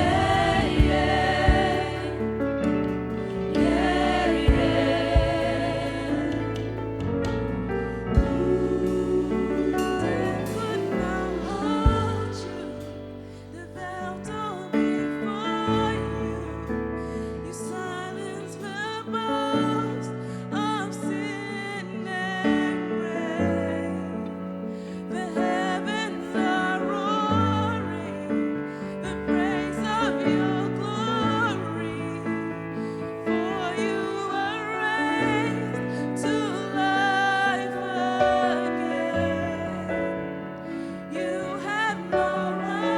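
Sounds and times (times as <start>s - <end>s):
keyboard chords and bass: 0.0s - 14.6s
worship band playing: 0.0s - 16.5s, 28.8s - 42.9s
drum thumps: 3.5s - 9.1s
person singing with vibrato: 8.0s - 42.9s.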